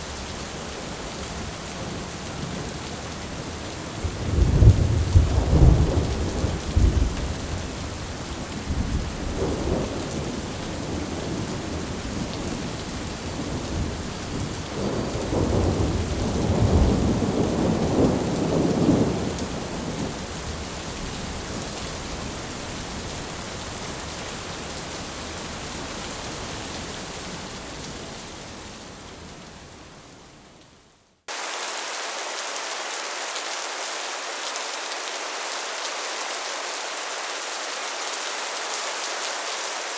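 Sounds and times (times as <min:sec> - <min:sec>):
rolling thunder: 0:04.1 - 0:07.4, 0:13.5 - 0:20.1.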